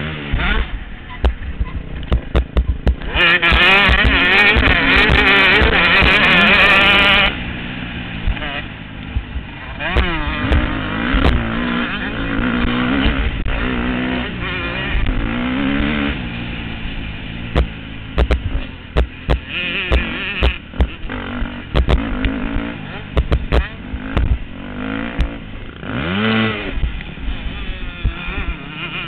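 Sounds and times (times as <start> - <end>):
motocross bike engines revving: 0.0 - 29.0
sharp knocks and crackles: 1.2 - 6.2, 17.5 - 24.5.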